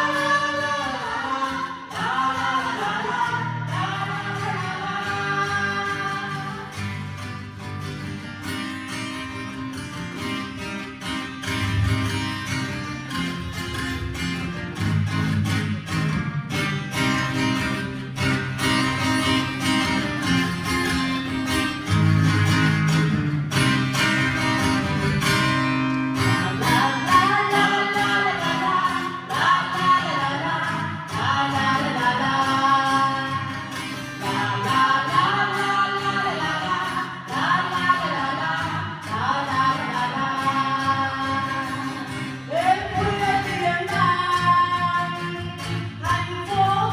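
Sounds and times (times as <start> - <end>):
person singing: 0.0 - 7.1, 26.2 - 46.9
acoustic guitar strumming: 0.0 - 46.9
bass line: 11.4 - 17.6.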